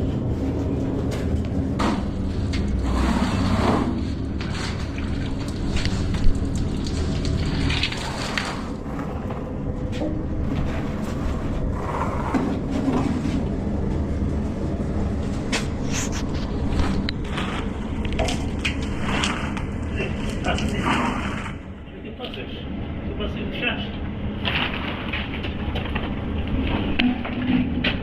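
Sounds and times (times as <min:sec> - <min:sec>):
low mechanical motor hum: 0:00.0 - 0:28.0.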